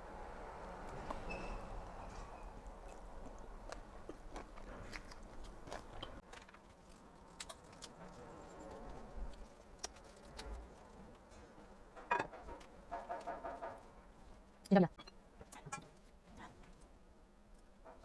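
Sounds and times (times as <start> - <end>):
chewing and crunching food: 2.1 - 11.4.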